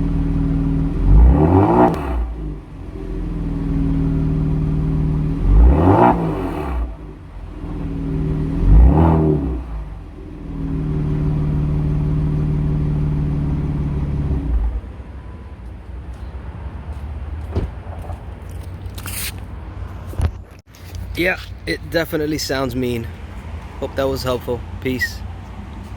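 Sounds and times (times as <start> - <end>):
car engine revving: 0.0 - 15.4.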